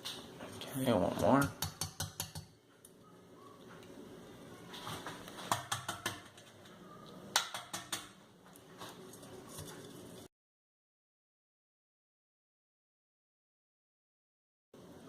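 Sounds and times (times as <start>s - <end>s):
egg shell tapping: 1.3s - 2.6s, 5.4s - 6.5s, 7.3s - 8.2s.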